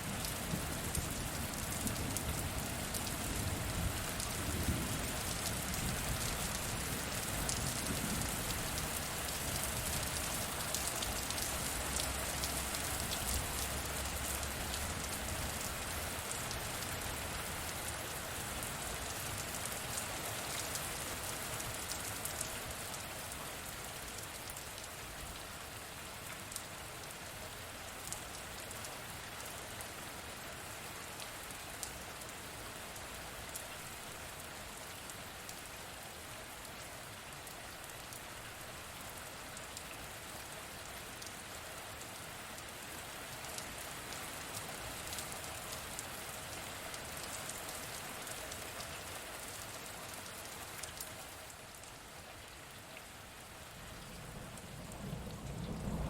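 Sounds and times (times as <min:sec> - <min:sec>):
heavy rain with drop ticks: 0:00.0 - 0:56.0
low rumble of thunder: 0:00.4 - 0:06.5, 0:07.4 - 0:09.0, 0:53.8 - 0:56.0.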